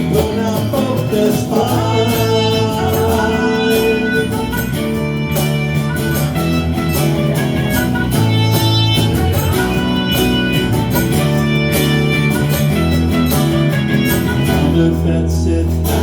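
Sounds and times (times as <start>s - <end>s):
bass: 0.0s - 16.0s
drums: 0.0s - 16.0s
strummed guitar: 0.0s - 16.0s.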